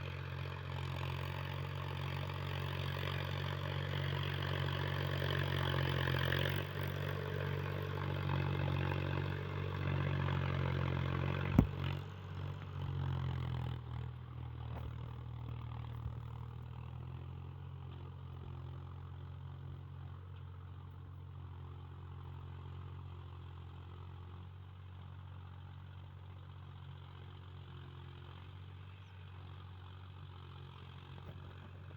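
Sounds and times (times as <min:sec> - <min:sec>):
diesel tractor engine running: 0:00.0 - 0:22.5.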